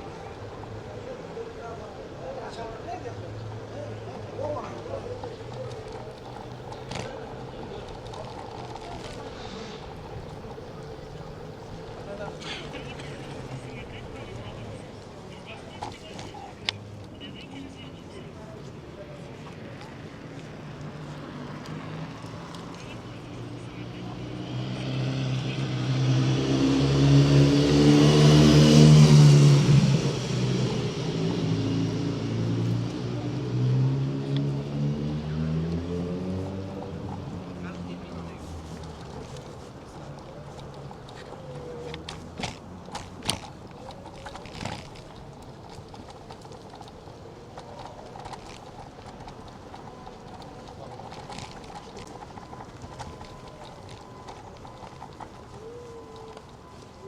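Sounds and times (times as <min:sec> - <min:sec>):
motor vehicle passing: 0:00.0 - 0:57.0
scooter clicks and rattles: 0:04.1 - 0:17.6, 0:36.9 - 0:57.0.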